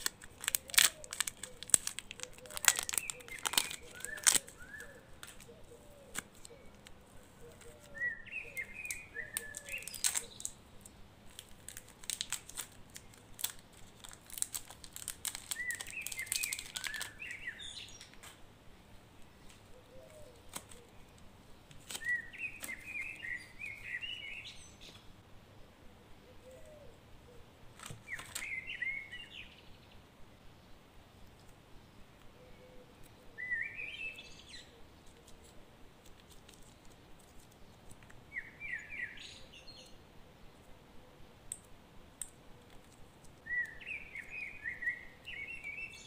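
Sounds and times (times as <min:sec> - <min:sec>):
clay being handled: 0:00.0 - 0:18.4, 0:19.2 - 0:23.9, 0:35.0 - 0:38.4, 0:41.5 - 0:43.8
plastic wrapper crinkling: 0:00.0 - 0:18.4, 0:21.7 - 0:23.3, 0:27.8 - 0:28.6, 0:35.1 - 0:38.2
small birds chirping: 0:00.0 - 0:46.0.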